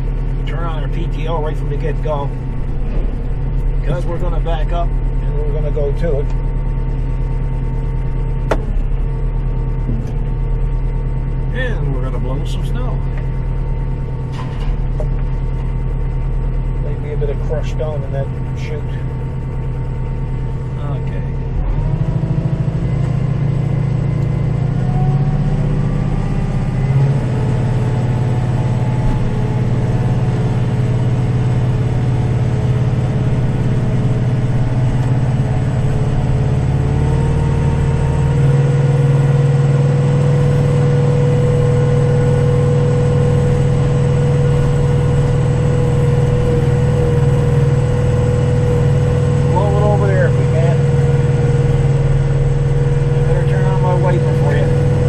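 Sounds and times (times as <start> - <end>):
tractor engine running: 0.0 - 55.0
brief knock: 8.5 - 8.7.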